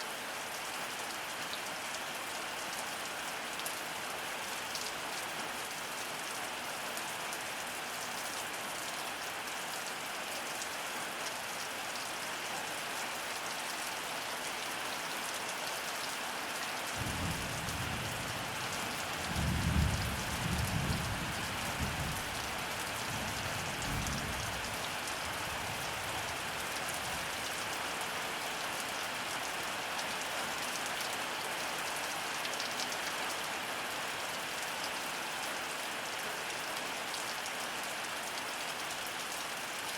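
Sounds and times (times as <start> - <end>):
heavy rain falling: 15.4 - 39.9.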